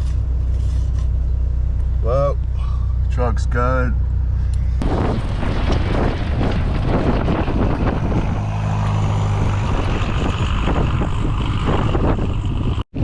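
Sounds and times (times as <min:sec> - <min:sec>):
car engine running: 0:00.0 - 0:12.8
wind noise on microphone: 0:04.7 - 0:13.0.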